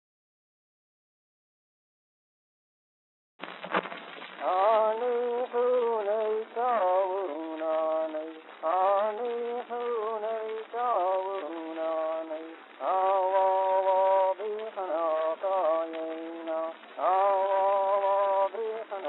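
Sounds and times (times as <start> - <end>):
wordless singing: 4.4 - 19.0.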